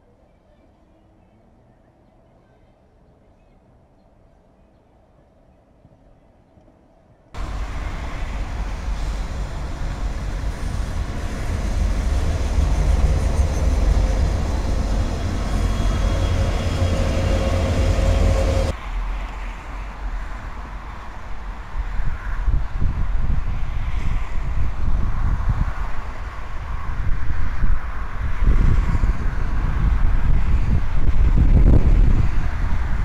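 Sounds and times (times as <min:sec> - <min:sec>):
train wheels rumbling on rail: 0:07.4 - 0:22.3.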